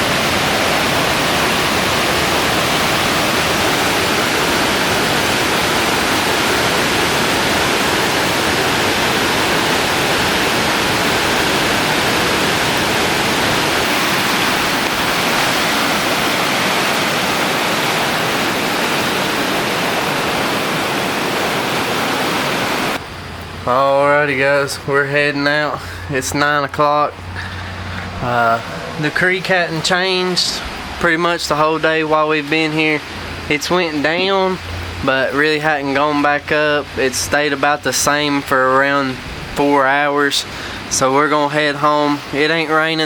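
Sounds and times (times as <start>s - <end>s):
flooded creek rushing: 0.0s - 43.0s.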